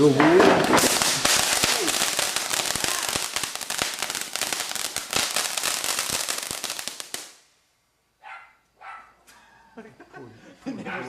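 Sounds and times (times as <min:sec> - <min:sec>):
ground firework crackling: 0:00.0 - 0:07.7.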